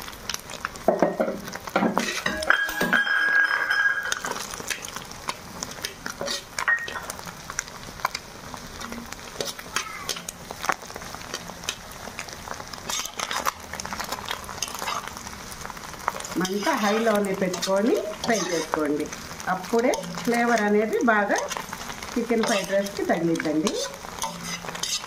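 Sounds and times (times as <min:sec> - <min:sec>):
food sizzling in a wok: 0:00.0 - 0:25.0
spatula scraping a pan: 0:01.8 - 0:02.5, 0:05.8 - 0:07.1, 0:08.9 - 0:10.4, 0:12.5 - 0:15.2, 0:16.1 - 0:25.0.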